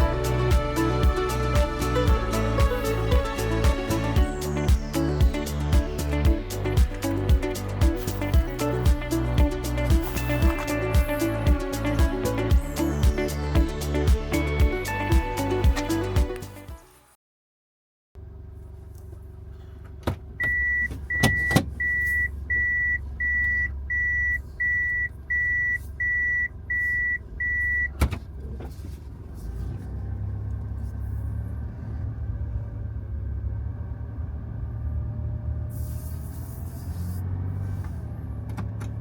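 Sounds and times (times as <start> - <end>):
van engine rumbling: 0.0 - 16.7, 18.2 - 39.0.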